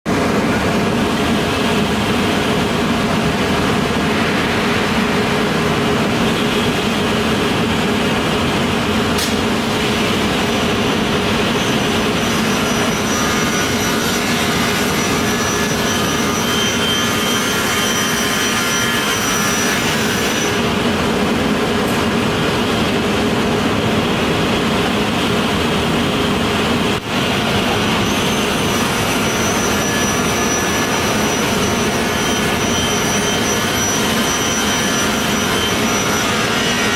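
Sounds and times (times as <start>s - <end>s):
industrial machinery hum: 0.1s - 36.9s.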